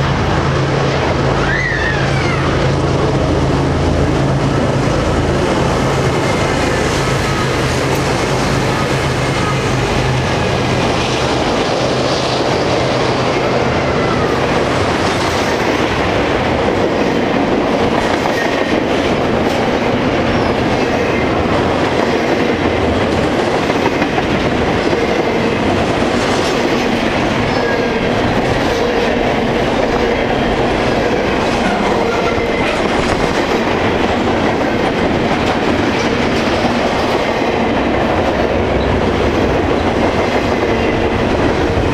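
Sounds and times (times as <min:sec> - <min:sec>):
train wheels rushing on rails: 0:00.0 - 0:41.9.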